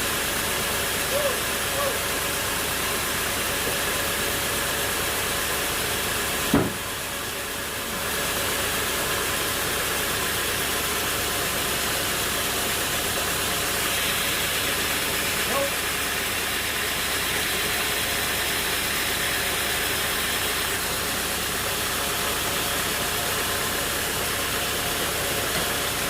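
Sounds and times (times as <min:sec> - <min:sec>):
sharp knock: 0:06.5 - 0:06.8.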